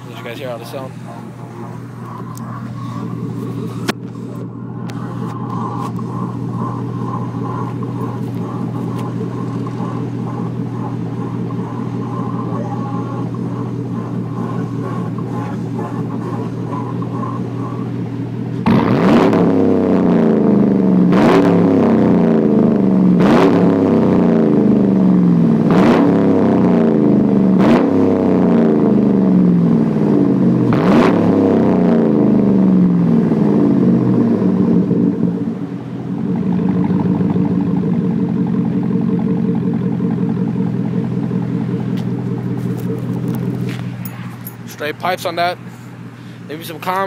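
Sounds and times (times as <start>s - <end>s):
truck engine idling: 0.0s - 18.7s, 31.4s - 47.0s
truck engine revving: 0.0s - 47.0s.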